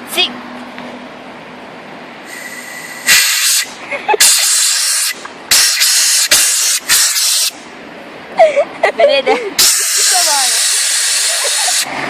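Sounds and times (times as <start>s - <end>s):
compressed air hissing blasts: 2.2s - 7.6s, 9.6s - 11.9s.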